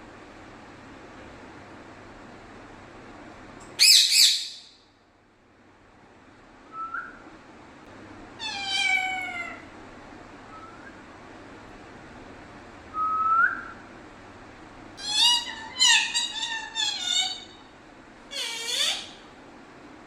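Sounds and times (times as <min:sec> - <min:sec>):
parrot squawking: 0:03.8 - 0:04.7, 0:08.4 - 0:09.7, 0:15.0 - 0:17.7, 0:18.3 - 0:19.3
parrot whistling: 0:03.8 - 0:04.7, 0:08.4 - 0:09.6, 0:15.0 - 0:17.5, 0:18.3 - 0:19.2.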